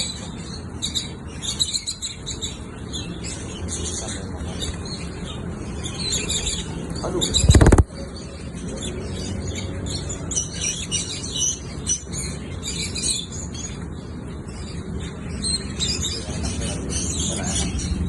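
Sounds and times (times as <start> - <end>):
lovebird chirping: 6.0 - 8.6.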